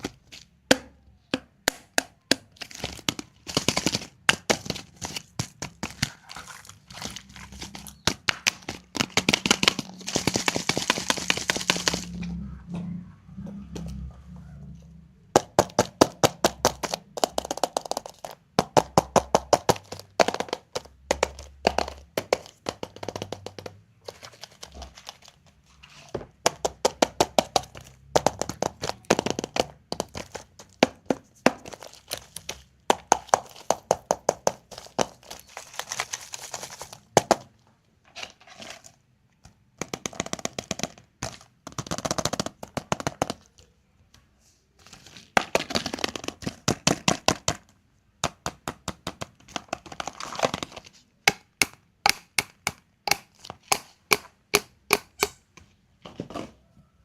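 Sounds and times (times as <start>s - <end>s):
candy eggs cracking open: 0.0s - 12.2s, 15.4s - 37.6s, 38.3s - 43.8s, 44.8s - 55.5s
plastic packaging crackling: 2.4s - 12.2s, 19.7s - 30.8s, 31.5s - 39.0s.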